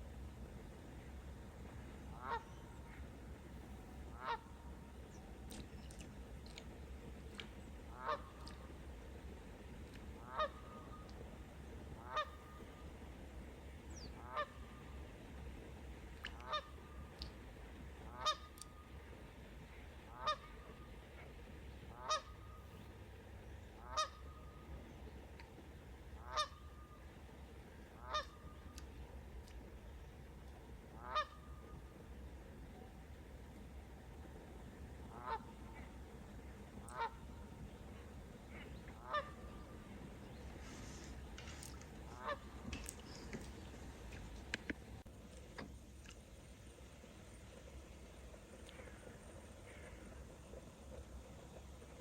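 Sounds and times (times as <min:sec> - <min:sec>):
goose honking: 0:02.1 - 0:03.0, 0:04.1 - 0:04.6, 0:07.9 - 0:08.6, 0:10.2 - 0:11.2, 0:12.0 - 0:12.7, 0:14.1 - 0:14.9, 0:16.3 - 0:16.8, 0:18.1 - 0:18.7, 0:20.1 - 0:20.8, 0:21.9 - 0:22.6, 0:23.8 - 0:24.6, 0:26.2 - 0:27.0, 0:28.0 - 0:28.6, 0:31.0 - 0:31.8, 0:35.1 - 0:37.4, 0:38.0 - 0:44.5.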